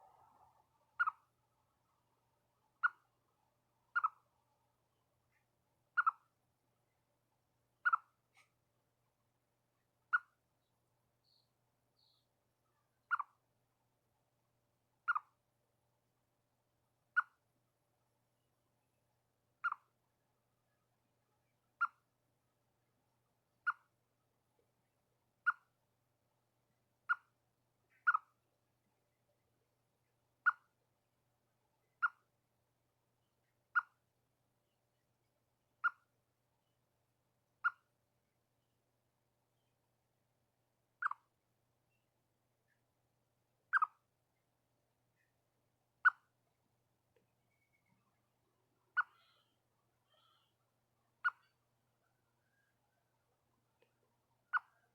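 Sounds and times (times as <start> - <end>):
chipmunk alarm chirps: 1.0 - 1.3, 2.8 - 3.1, 3.9 - 4.2, 6.0 - 6.3, 7.8 - 8.1, 10.1 - 10.4, 13.1 - 13.4, 15.1 - 15.3, 19.6 - 19.9, 21.8 - 22.0, 25.4 - 25.7, 27.1 - 27.3, 27.9 - 28.4, 30.4 - 30.7, 32.0 - 32.3, 33.7 - 34.0, 35.8 - 36.1, 37.6 - 37.9, 41.0 - 41.3, 43.7 - 44.0, 46.0 - 46.3, 48.9 - 49.5, 51.2 - 52.7, 54.4 - 54.9.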